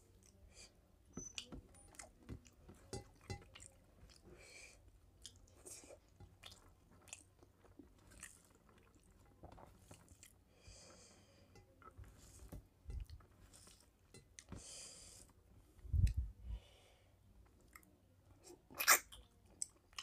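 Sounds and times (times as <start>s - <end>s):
close chewing: 5.1s - 10.4s.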